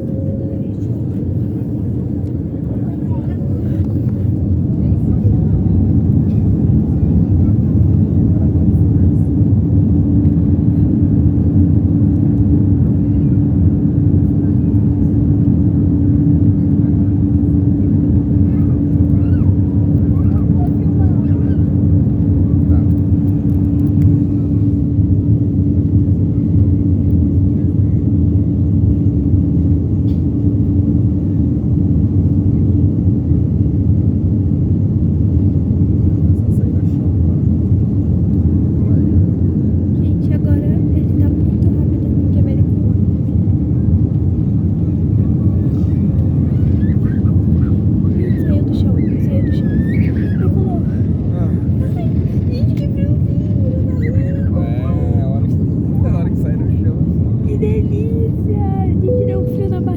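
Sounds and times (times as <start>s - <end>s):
airliner engines roaring in cabin: 0.0s - 59.9s
constant hum: 0.0s - 59.9s
steady hum: 57.1s - 59.9s.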